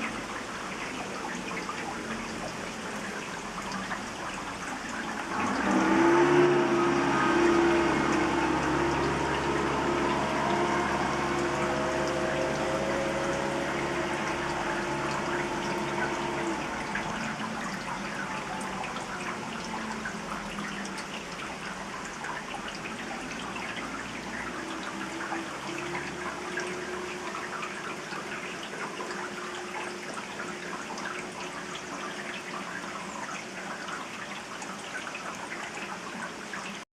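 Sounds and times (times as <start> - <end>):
rain drops ticking: 0.0 - 36.8
helicopter droning: 5.3 - 20.2.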